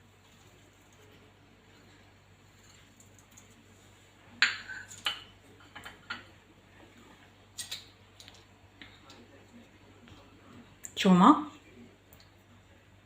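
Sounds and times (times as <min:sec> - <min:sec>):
kitchenware clinking: 0:04.3 - 0:06.3.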